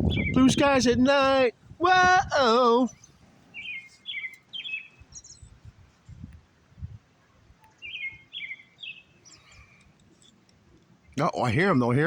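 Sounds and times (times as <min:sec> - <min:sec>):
high bird chirp: 0:00.0 - 0:00.9, 0:02.8 - 0:05.6, 0:07.6 - 0:10.4
songbird singing: 0:00.0 - 0:12.0.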